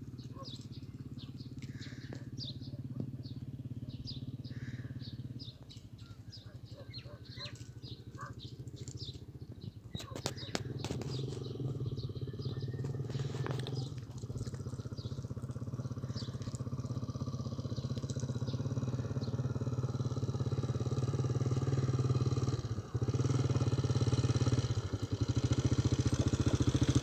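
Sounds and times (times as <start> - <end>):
small engine idling: 0.0 - 27.0
faint bird chirps: 0.1 - 20.1.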